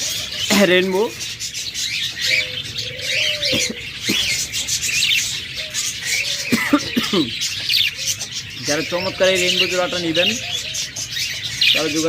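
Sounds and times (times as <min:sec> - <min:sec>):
caged birds chirping: 0:00.0 - 0:12.0
short falling bird calls: 0:01.4 - 0:11.9
low drawn-out bird call: 0:02.2 - 0:10.8.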